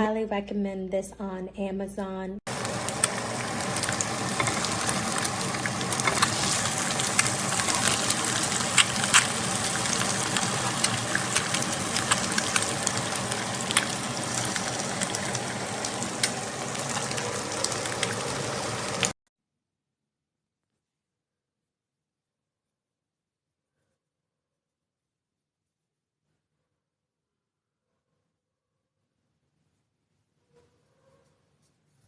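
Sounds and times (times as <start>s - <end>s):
popping spattering fat: 2.5s - 15.4s
food sizzling in frying pan: 2.5s - 19.2s.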